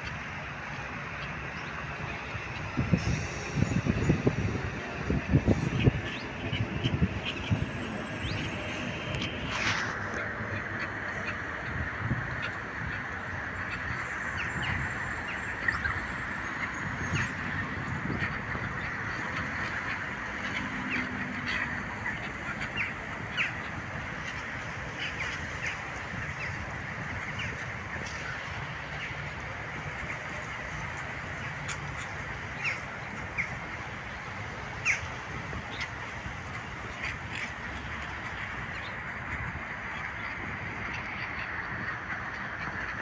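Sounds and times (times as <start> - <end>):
ducks quacking: 8.2 - 43.0.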